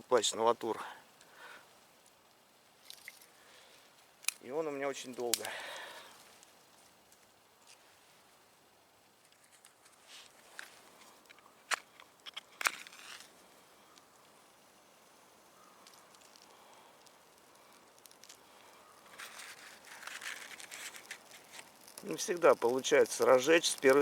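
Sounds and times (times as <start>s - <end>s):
scratchy rustling of twigs: 2.0s - 8.4s, 9.1s - 24.0s
twigs snapping: 2.8s - 3.3s, 4.2s - 7.8s, 9.2s - 14.1s, 15.6s - 22.8s.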